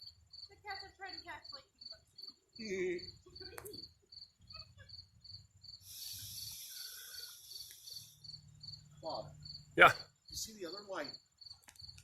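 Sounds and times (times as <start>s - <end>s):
cricket chirping: 0.0s - 12.0s
loud hiss: 5.8s - 8.2s.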